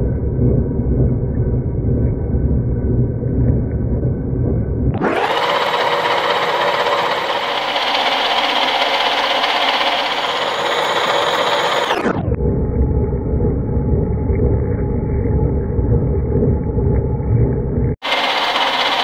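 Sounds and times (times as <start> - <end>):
deep rumble: 0.0 - 5.3, 12.1 - 18.0
metal lathe whirring: 5.0 - 12.1, 18.0 - 19.0.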